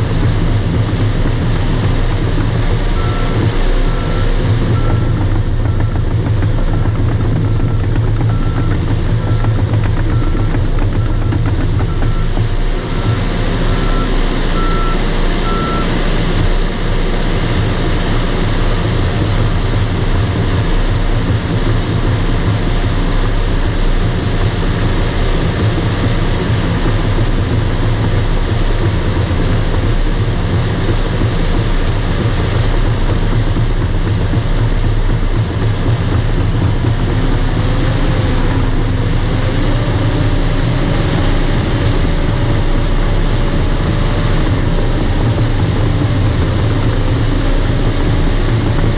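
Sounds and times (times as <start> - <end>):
bulldozer diesel engine running: 0.0 - 48.9
wavering whine: 0.0 - 48.9
reverse alarm beeping: 2.9 - 16.0.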